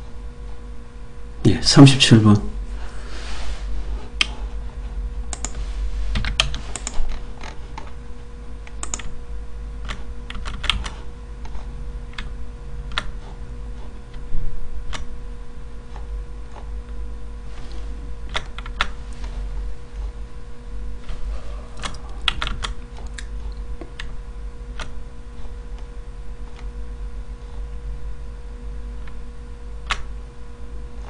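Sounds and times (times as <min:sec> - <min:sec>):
low electrical hum: 0:00.0 - 0:31.0
keyboard keystrokes and clicks: 0:05.3 - 0:05.6, 0:06.2 - 0:07.9, 0:08.7 - 0:09.2, 0:09.8 - 0:12.3, 0:12.9 - 0:13.1, 0:14.9 - 0:15.1, 0:21.8 - 0:24.1, 0:29.8 - 0:30.1.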